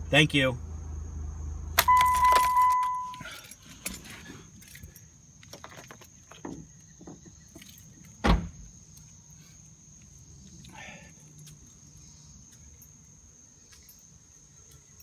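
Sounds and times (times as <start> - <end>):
electronic warning tone: 1.8 - 3.3
car keys jangling: 1.8 - 6.4.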